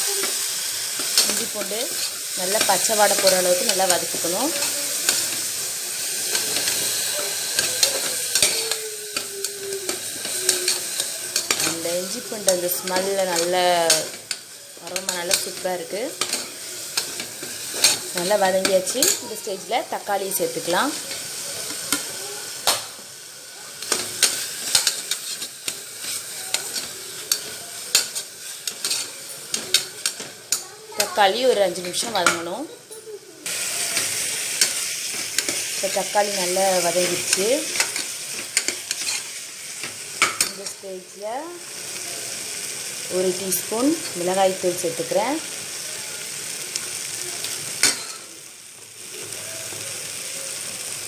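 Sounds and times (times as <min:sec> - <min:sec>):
onions sizzling in oil: 0:00.0 - 0:51.0
spoon scraping metal pot: 0:23.9 - 0:30.2, 0:37.0 - 0:39.3.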